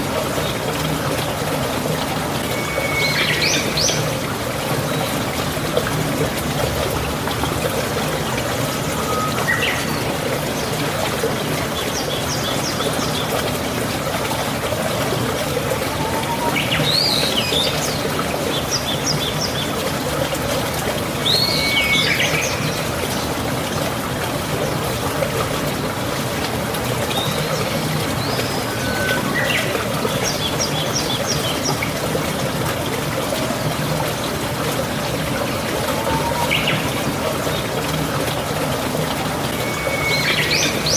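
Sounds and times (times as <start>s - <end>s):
falling water rushing: 0.0s - 40.9s
birds chirping and whistling: 2.6s - 4.0s, 28.2s - 29.7s, 36.0s - 36.9s, 39.6s - 40.9s.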